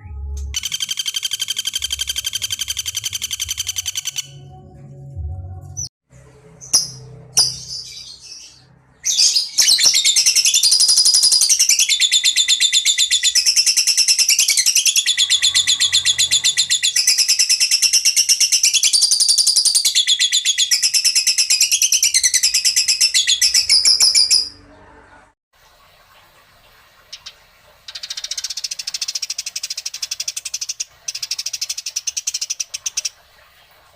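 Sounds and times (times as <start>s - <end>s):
songbird high fast trill: 0.4s - 4.5s.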